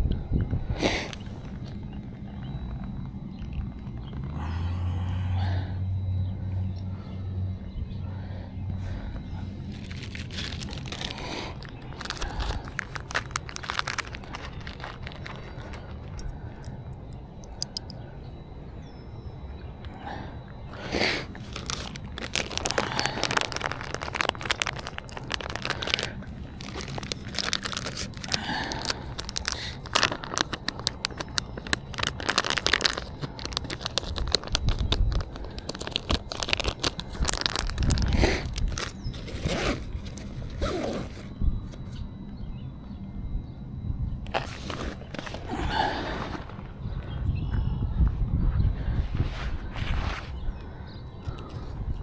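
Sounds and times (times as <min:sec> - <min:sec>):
rustling and crinkling: 0:00.7 - 0:04.4, 0:08.7 - 0:18.5, 0:19.8 - 0:42.1, 0:44.2 - 0:47.2, 0:48.8 - 0:50.6.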